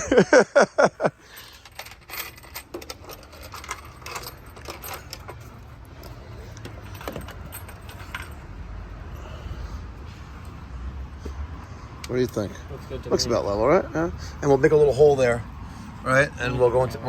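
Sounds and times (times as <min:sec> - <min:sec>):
small metal objects clinking: 0:01.3 - 0:08.5.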